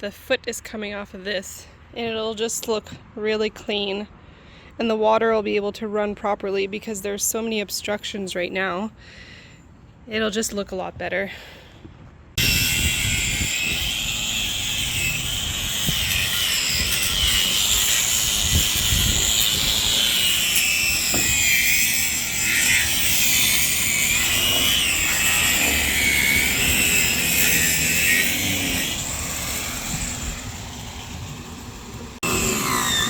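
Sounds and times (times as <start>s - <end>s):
power grinder whining: 12.4s - 33.0s.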